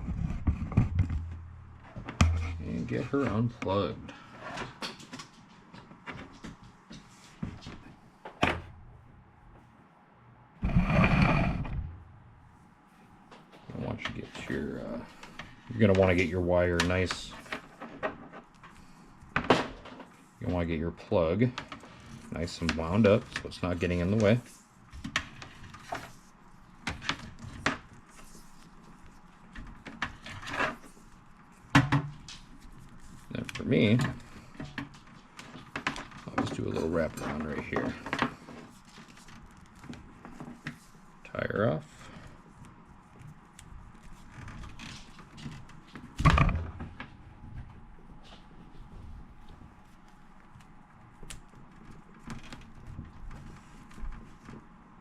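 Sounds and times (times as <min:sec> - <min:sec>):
cord rubbing: 0:10.6 - 0:12.2, 0:21.7 - 0:46.5.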